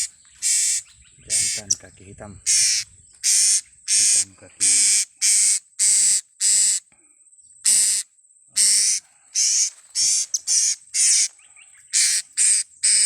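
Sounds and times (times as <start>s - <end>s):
parrots shrill calls: 0.0s - 1.8s, 2.5s - 6.8s, 8.6s - 11.3s, 11.9s - 13.0s.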